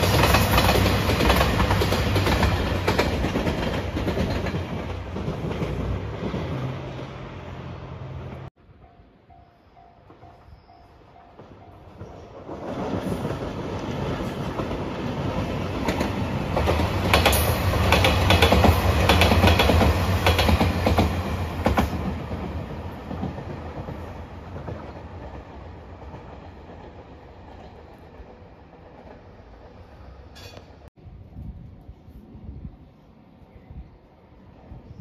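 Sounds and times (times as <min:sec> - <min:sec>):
diesel train engine drone: 0:00.0 - 0:11.9
wheels clacking over rail joints: 0:11.2 - 0:29.2.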